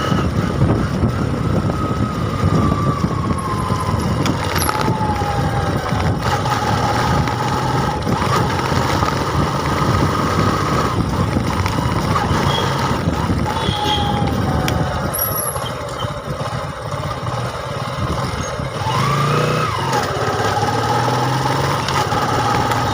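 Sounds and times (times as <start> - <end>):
wind on microphone: 0.0 - 17.1
vehicle engine and road noise: 0.0 - 22.9.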